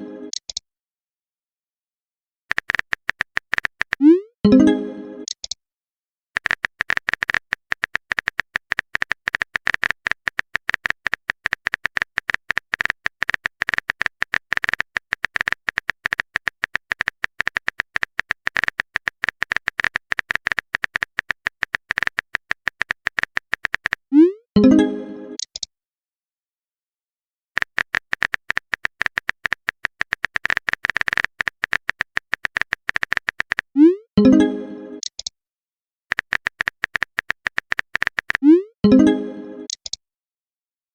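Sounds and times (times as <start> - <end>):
phone keyboard typing clicks: 2.5 - 4.2, 5.2 - 5.6, 6.4 - 24.1, 25.4 - 25.7, 27.6 - 33.8, 35.0 - 35.3, 36.1 - 38.5, 39.7 - 40.0.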